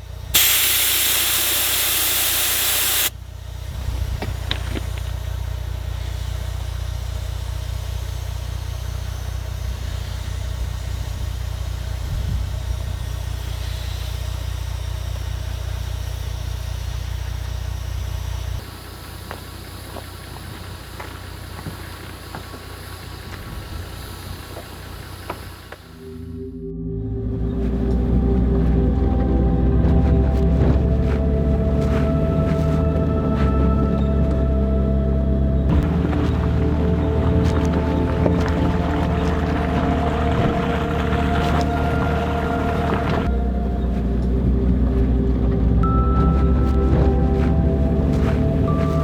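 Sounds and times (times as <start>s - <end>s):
truck engine humming: 0.0s - 49.0s
air hissing from tyre: 0.3s - 3.2s, 5.7s - 26.0s.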